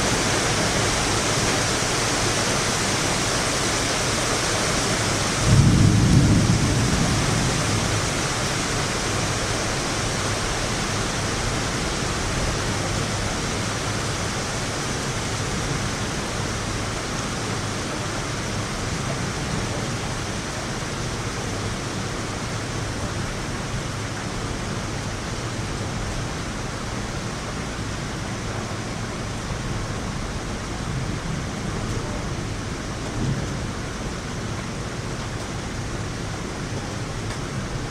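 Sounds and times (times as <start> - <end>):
heavy rain falling: 0.0 - 37.9
thunder rumbling: 5.3 - 8.4.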